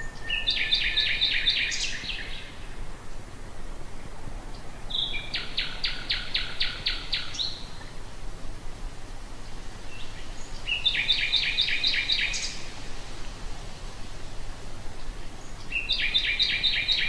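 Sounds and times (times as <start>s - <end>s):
nightingale singing: 0.0s - 2.8s, 4.5s - 8.0s, 9.8s - 12.8s, 15.0s - 17.0s
low background noise: 0.0s - 17.0s.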